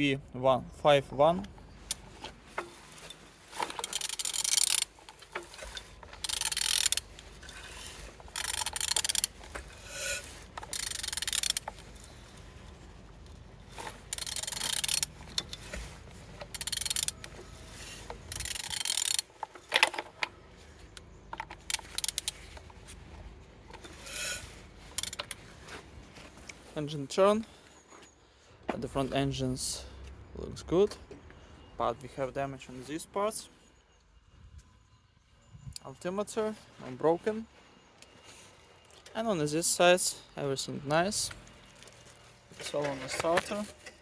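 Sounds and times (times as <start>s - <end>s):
engine crankshaft rasping strokes: 3.6s - 20.0s, 23.8s - 25.4s.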